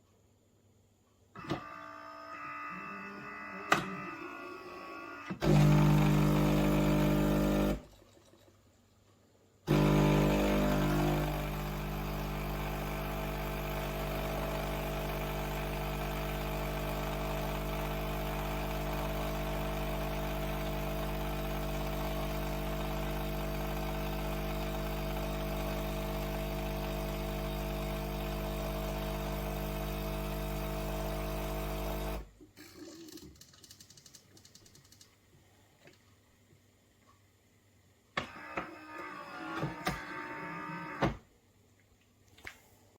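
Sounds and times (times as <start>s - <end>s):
espresso machine humming: 5.4s - 7.8s, 9.7s - 32.3s.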